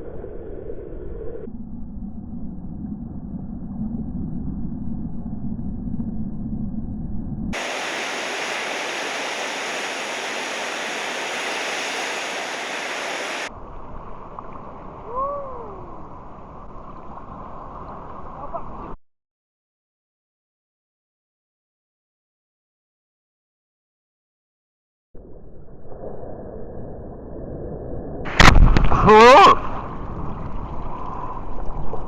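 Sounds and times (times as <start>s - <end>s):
surf and moving water rushing: 7.6s - 19.0s, 28.3s - 32.0s.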